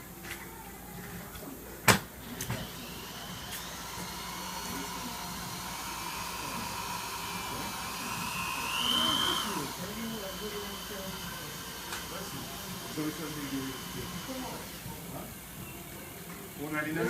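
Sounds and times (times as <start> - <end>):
small motor whining: 2.2 - 15.8.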